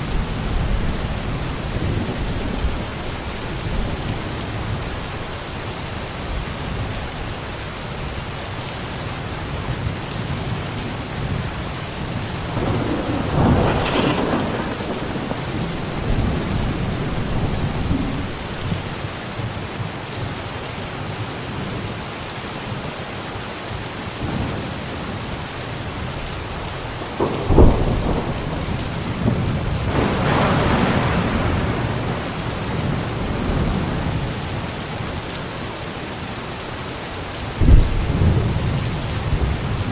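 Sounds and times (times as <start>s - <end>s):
thunder rumbling: 0.0s - 5.6s, 9.8s - 19.1s, 24.2s - 35.3s, 37.4s - 39.9s
steady rain: 0.0s - 39.9s
sharp thunder crack: 12.5s - 18.6s, 27.1s - 32.4s.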